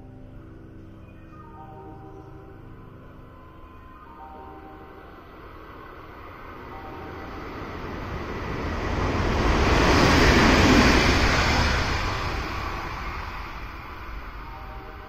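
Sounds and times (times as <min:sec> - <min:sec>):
electric train passing: 0:00.0 - 0:15.0.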